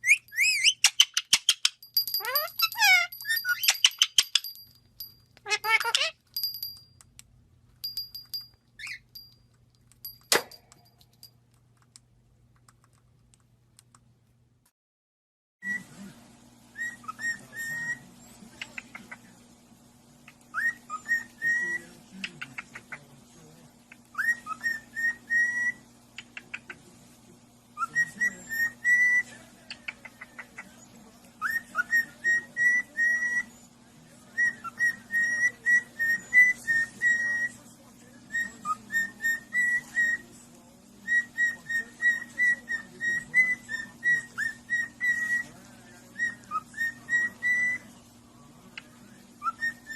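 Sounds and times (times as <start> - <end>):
parrot whistling: 0.0 - 6.8, 16.7 - 18.0, 20.5 - 21.8, 24.1 - 25.8, 27.8 - 30.4, 31.4 - 33.6, 34.3 - 37.6, 38.3 - 40.3, 41.0 - 47.9, 49.4 - 49.9.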